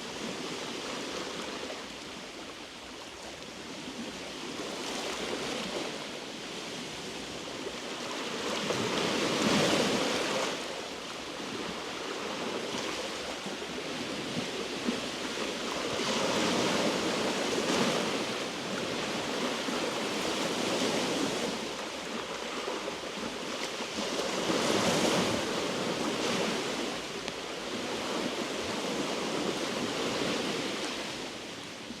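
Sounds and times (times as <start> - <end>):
waves washing over rocky shore: 4.1 - 32.0.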